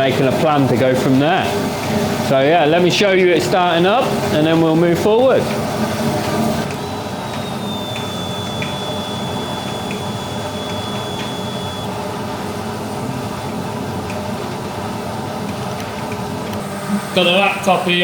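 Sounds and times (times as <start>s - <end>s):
fan-like hum: 0.0s - 18.0s
faint high whine: 6.6s - 12.0s, 16.6s - 18.0s.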